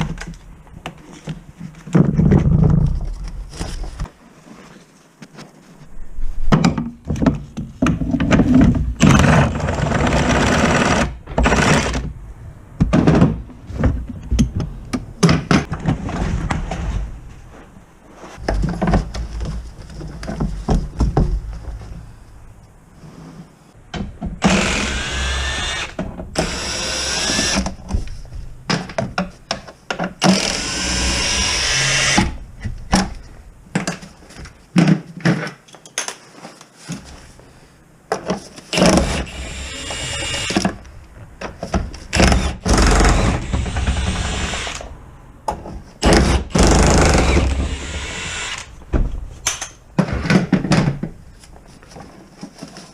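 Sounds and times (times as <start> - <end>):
cordless power tool spinning: 24.4 - 27.6, 42.2 - 44.8, 46.6 - 48.7.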